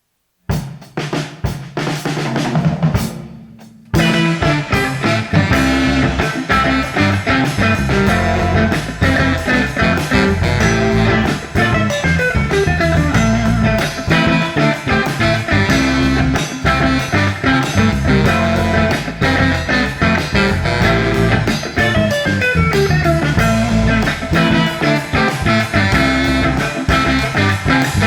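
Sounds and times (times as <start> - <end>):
drums: 0.0 - 28.0
guitar: 3.8 - 28.0
electric bass: 4.0 - 28.0
saxophone: 4.0 - 28.0.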